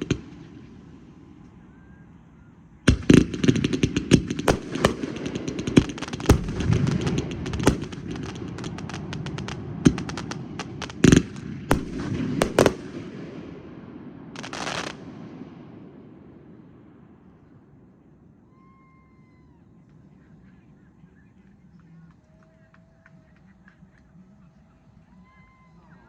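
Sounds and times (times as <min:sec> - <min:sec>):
fireworks bangs: 0:00.0 - 0:01.6, 0:02.8 - 0:17.2
fireworks crackling: 0:00.0 - 0:01.6, 0:02.9 - 0:16.8.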